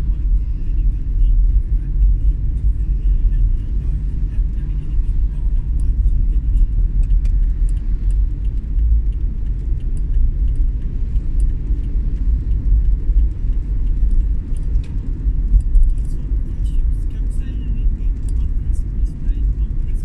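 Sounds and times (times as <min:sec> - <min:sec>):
vehicle road rumble: 0:00.0 - 0:20.0
faint ticks: 0:05.7 - 0:16.4.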